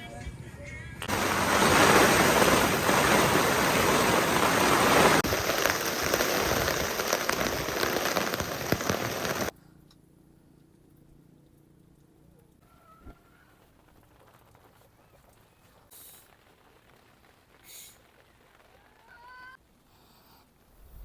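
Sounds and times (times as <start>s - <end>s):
heavy rain pouring: 1.0s - 9.5s, 15.5s - 19.4s.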